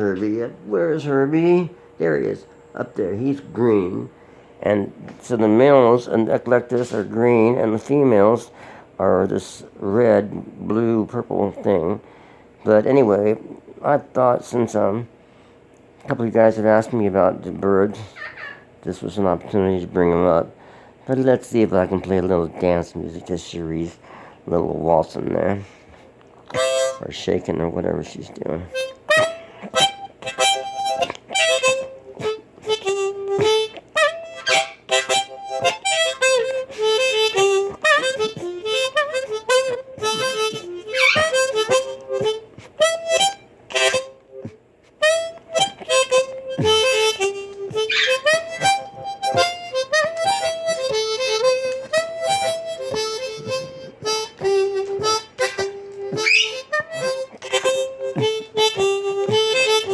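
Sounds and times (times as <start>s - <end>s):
blues harmonica: 0.0s - 12.4s, 25.6s - 59.9s.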